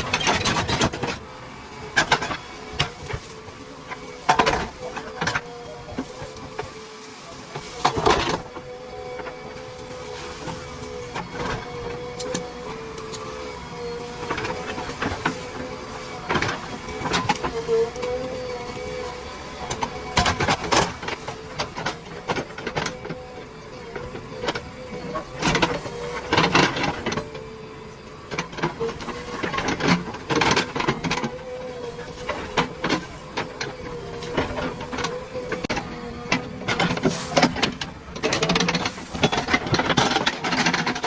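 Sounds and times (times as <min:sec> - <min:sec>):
diesel engine and hydraulics whine: 0:00.0 - 0:41.0
clanks of working gear: 0:11.2 - 0:13.3, 0:28.3 - 0:41.0.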